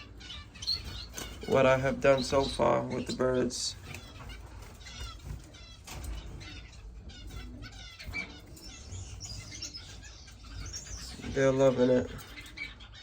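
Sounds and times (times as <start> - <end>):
finches chirping: 0.0 - 13.0.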